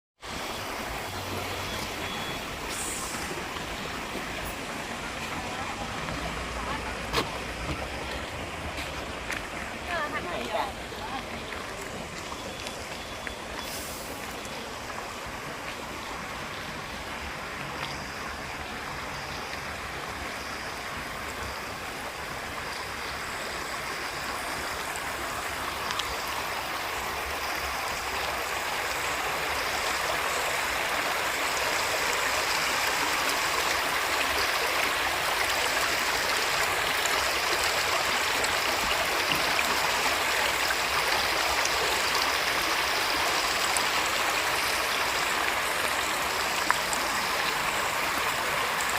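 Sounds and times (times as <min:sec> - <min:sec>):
waterfall rushing and splashing: 0:00.2 - 0:48.9.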